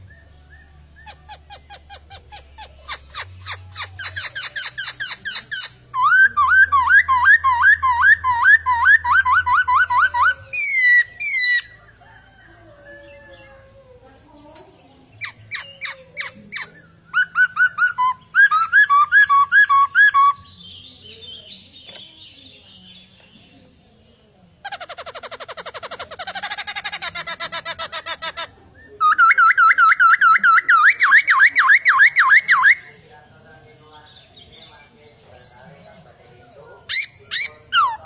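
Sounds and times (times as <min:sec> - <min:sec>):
bird singing whistled phrases: 0:02.9 - 0:11.7, 0:15.2 - 0:23.4, 0:28.8 - 0:33.0.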